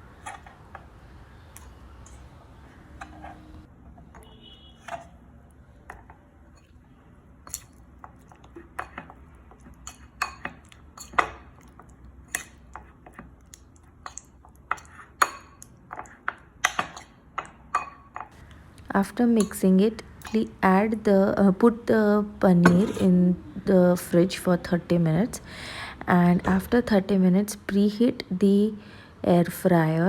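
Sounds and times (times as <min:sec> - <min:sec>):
spoon clinking against bowl: 0:09.8 - 0:11.4, 0:19.3 - 0:20.5, 0:22.6 - 0:23.1.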